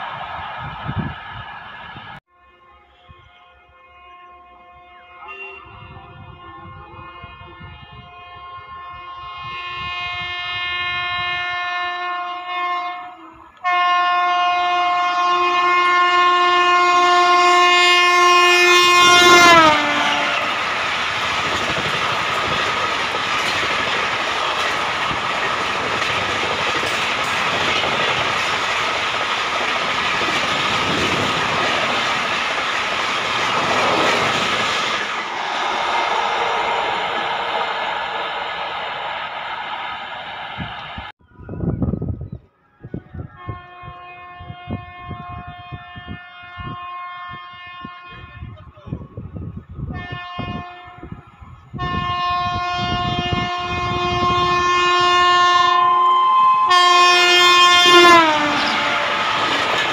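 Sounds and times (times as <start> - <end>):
train coaches rushing past: 0.0 - 2.2, 18.4 - 41.1, 52.5 - 59.9
locomotive horn blasts: 2.3 - 20.7, 43.3 - 48.6, 49.9 - 51.2, 51.8 - 59.4
wheels clattering on rails: 20.5 - 41.0, 58.6 - 59.9.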